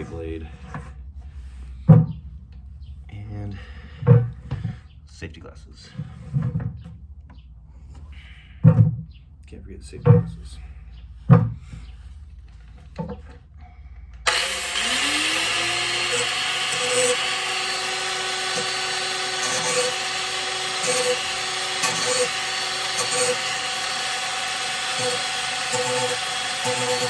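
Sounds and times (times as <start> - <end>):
angle grinder whining: 14.3 - 27.0.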